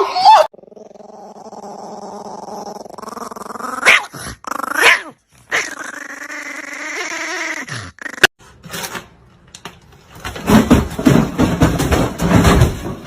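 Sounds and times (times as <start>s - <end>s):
dog growling: 0.5s - 8.3s
dog barking: 3.8s - 4.2s, 4.8s - 5.6s.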